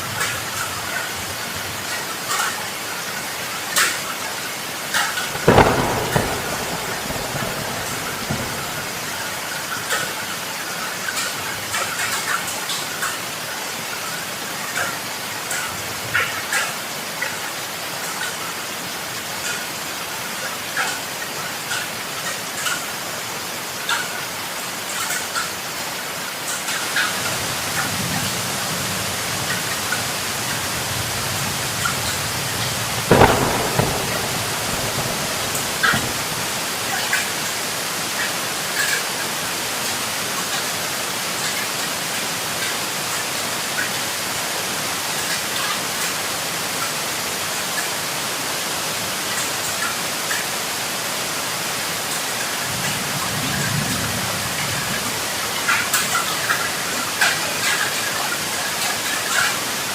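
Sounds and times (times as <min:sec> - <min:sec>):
heavy rain pouring: 0:00.0 - 0:59.9
sharp thunderclap: 0:05.2 - 0:10.1, 0:27.0 - 0:37.6
low rolls of thunder: 0:05.3 - 0:10.0, 0:27.2 - 0:37.4.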